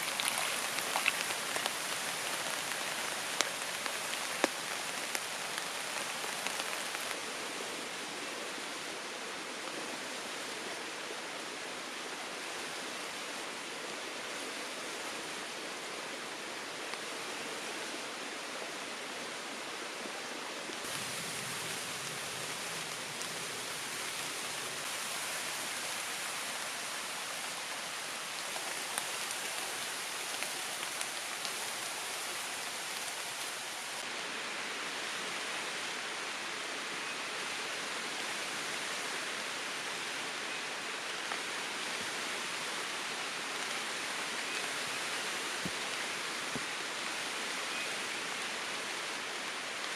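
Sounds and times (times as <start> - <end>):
raindrop ticks: 0.0 - 7.2
rain falling in a forest: 0.0 - 49.9.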